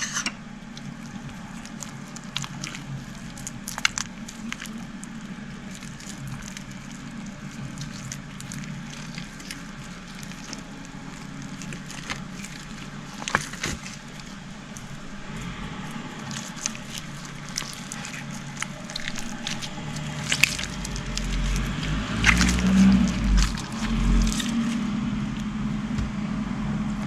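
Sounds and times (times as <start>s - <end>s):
steady low hum: 0.0s - 27.0s
slime popping: 0.7s - 24.8s.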